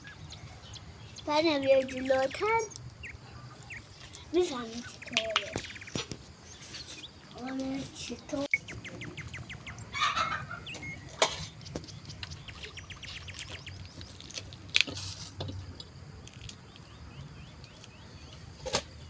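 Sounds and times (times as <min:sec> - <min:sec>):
chickens clucking: 0:00.0 - 0:14.1
small birds chirping: 0:00.0 - 0:19.0.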